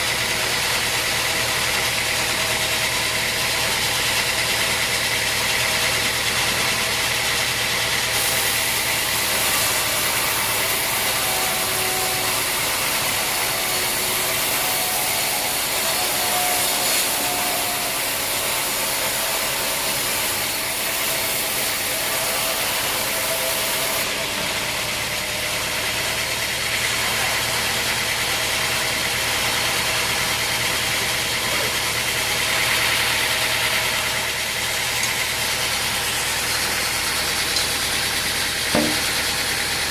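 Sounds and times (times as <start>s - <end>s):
sawmill mechanical drone: 0.0s - 39.9s
high saw hiss: 8.0s - 24.6s.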